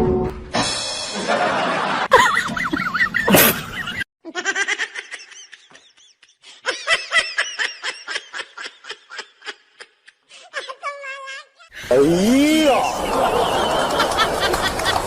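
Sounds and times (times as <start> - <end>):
high-pitched laughter: 2.0 - 11.9.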